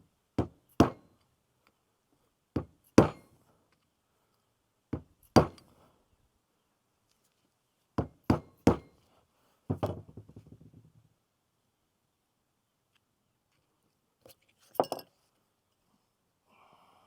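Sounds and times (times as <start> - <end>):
hammer striking steel: 0.8 - 1.0, 3.0 - 3.2.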